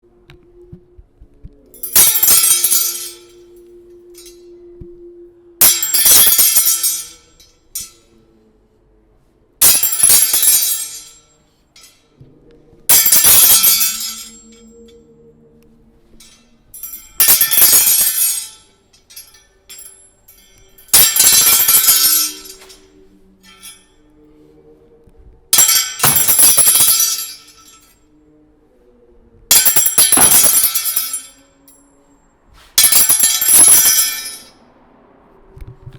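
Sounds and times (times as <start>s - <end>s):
faint low tones: 0.0s - 32.5s
metal chair parts clinking: 1.8s - 4.5s, 5.6s - 8.1s, 9.6s - 12.2s, 12.9s - 15.0s, 16.1s - 24.0s, 25.6s - 28.0s, 29.5s - 31.8s, 32.8s - 34.6s.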